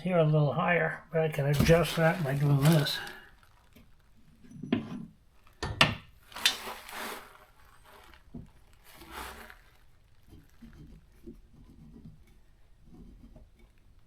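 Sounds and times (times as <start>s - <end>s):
shelf knocks and clunks: 1.4s - 3.0s
shelf scraping and rubbing: 1.4s - 3.2s, 6.4s - 12.2s.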